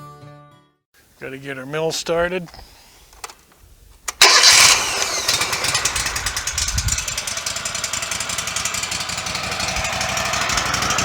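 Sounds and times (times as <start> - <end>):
sawmill engine running: 4.2 - 11.0.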